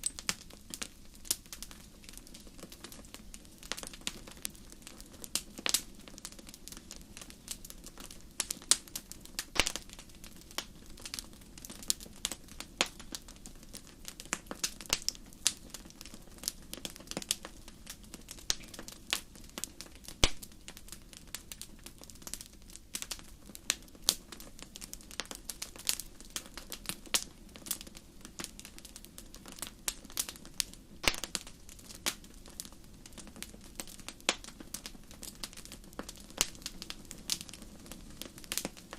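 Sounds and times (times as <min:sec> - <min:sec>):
fire burning hiss: 0:00.0 - 0:38.9
wood fire pops and snaps: 0:00.0 - 0:38.9.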